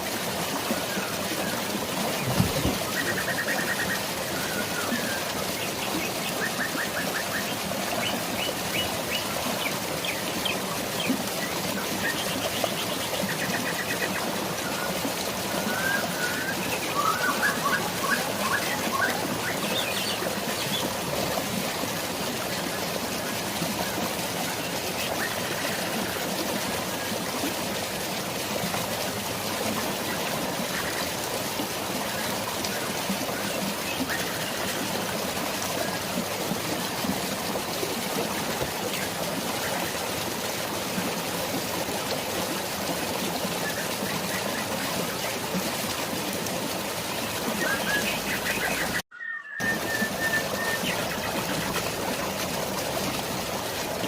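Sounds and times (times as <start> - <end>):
drizzling rain: 0.0 - 54.0
waterfall rushing: 0.0 - 54.0
birds chirping and trilling: 47.5 - 51.9.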